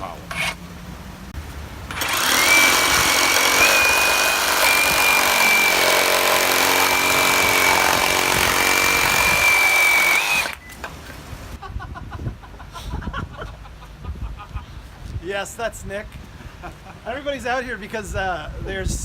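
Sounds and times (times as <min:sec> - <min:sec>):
reciprocating saw motor whine: 0:01.9 - 0:10.6.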